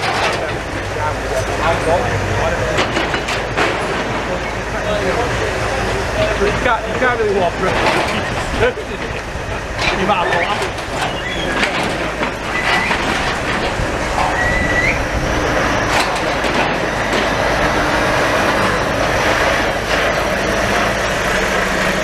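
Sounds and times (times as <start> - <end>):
demolition machinery clatter: 0.0 - 22.0
high metallic squeals: 9.8 - 16.2.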